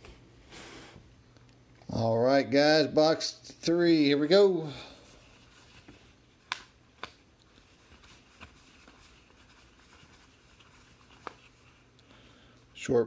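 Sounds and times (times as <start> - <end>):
cardboard and wrapper snaps: 6.4 - 7.2.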